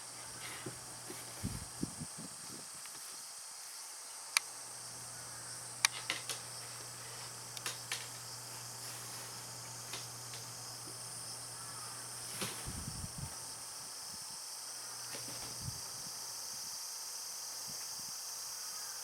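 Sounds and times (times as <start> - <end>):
steady hiss: 0.0 - 19.0
light clicks and taps on wicker: 5.8 - 11.0.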